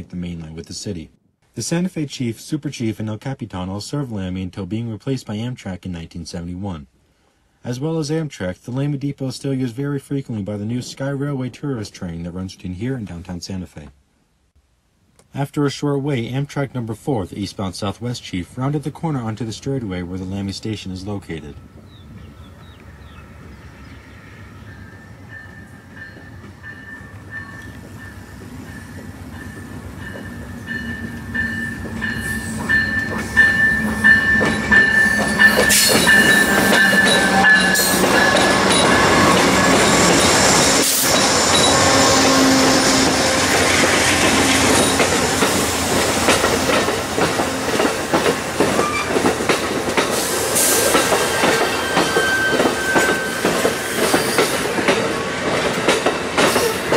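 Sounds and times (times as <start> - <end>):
high steady squeal: 21.3 - 45.7, 51.6 - 54.6
train wheels knocking on rail joints: 27.4 - 56.9.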